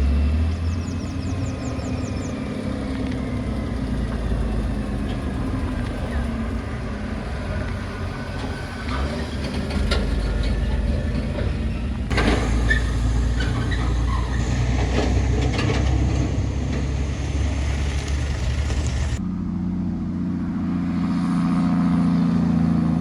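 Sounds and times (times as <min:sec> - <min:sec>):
diesel truck engine rumbling: 0:00.0 - 0:23.0
clattering rattles: 0:07.5 - 0:17.0.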